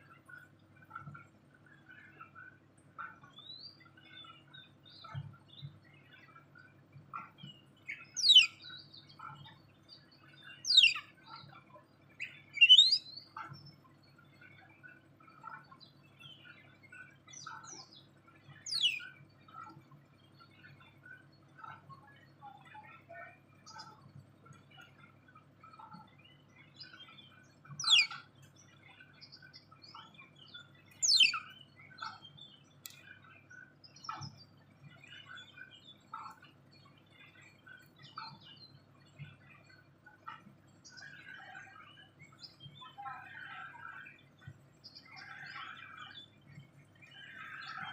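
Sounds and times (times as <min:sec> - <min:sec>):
soft bird chirps: 0:07.1 - 0:11.6, 0:12.2 - 0:25.1, 0:25.7 - 0:47.9
soft short bird chirps: 0:07.9 - 0:08.6, 0:10.7 - 0:11.0, 0:12.2 - 0:13.0, 0:18.7 - 0:19.0, 0:27.7 - 0:28.2, 0:31.0 - 0:32.2
bird sharp sweeping calls: 0:12.6 - 0:13.0, 0:27.8 - 0:28.2, 0:31.0 - 0:31.4.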